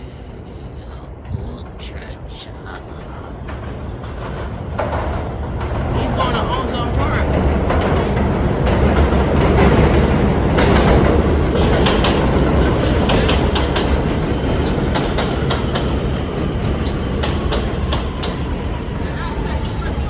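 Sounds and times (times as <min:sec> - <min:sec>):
subway train rumbling: 0:00.0 - 0:20.0
wheels clicking over rail joints: 0:07.3 - 0:20.0.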